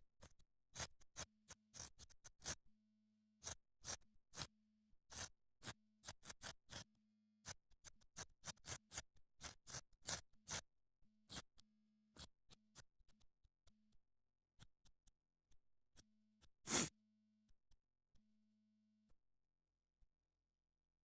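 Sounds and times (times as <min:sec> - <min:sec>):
knife scraping wood: 0:16.7 - 0:16.9.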